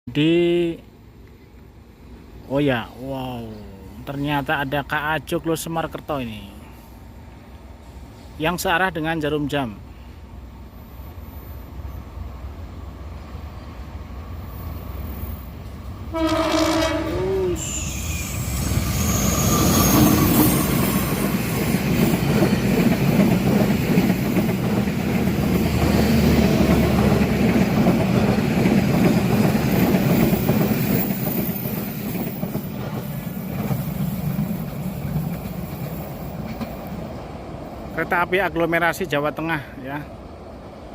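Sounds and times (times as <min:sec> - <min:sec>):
train wheels rumbling and clacking: 0:14.6 - 0:39.2
wheezy locomotive horn blast: 0:16.1 - 0:20.8.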